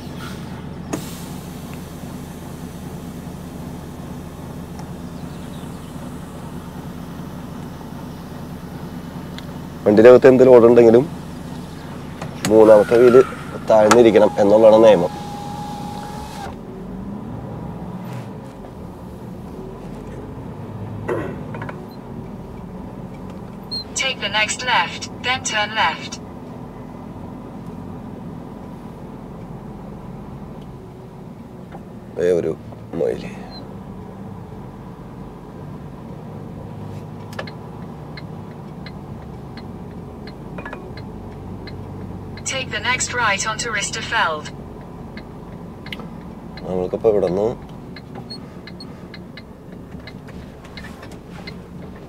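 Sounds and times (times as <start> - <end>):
truck engine running: 0.0 - 52.0
turn signal ticking: 21.6 - 26.3, 35.9 - 52.0.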